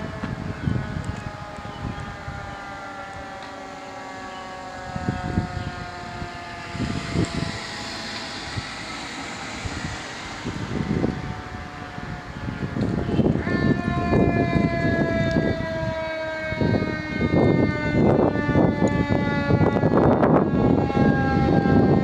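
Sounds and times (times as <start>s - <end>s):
fire engine siren: 0.0s - 22.0s
low engine rumble: 5.2s - 13.9s.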